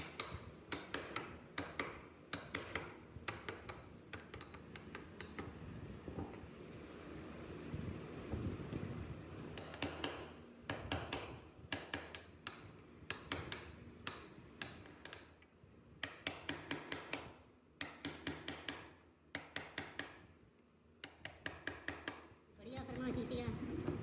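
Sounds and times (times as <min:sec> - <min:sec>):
mallet tapping chisel into wood: 0:00.0 - 0:05.6, 0:09.5 - 0:15.3, 0:16.0 - 0:20.2, 0:21.0 - 0:22.3.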